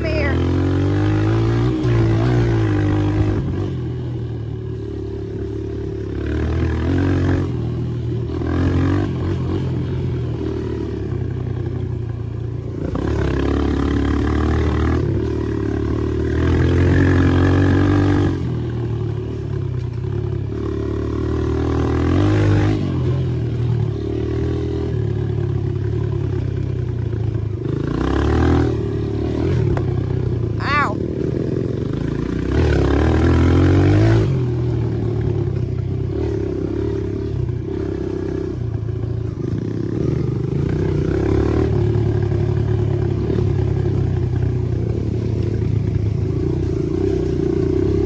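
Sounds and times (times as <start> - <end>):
dirt bike engine revving: 0.0 - 3.8, 6.0 - 10.9, 12.8 - 19.5, 20.5 - 24.9, 27.5 - 29.8, 30.5 - 38.6, 39.2 - 43.9.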